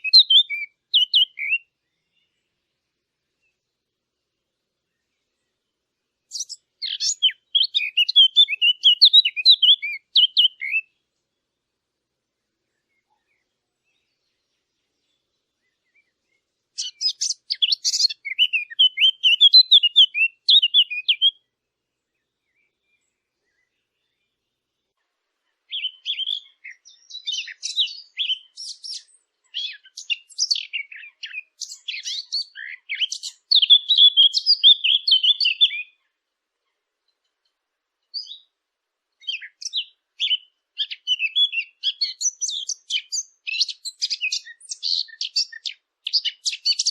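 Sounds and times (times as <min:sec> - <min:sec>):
songbird chirping: 0:00.0 - 0:46.9.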